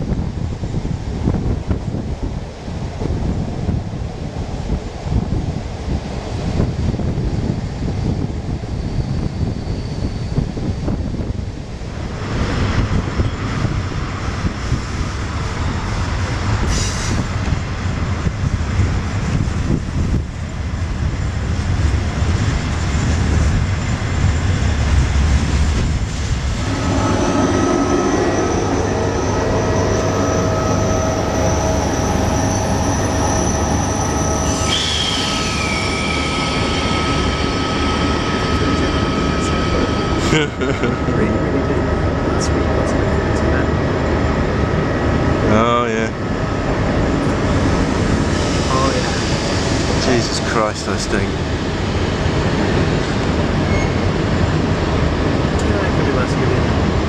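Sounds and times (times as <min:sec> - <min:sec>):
train wheels rumbling on rails: 0:00.0 - 0:57.0
high wheel squeal: 0:26.2 - 0:41.4, 0:53.6 - 0:54.2.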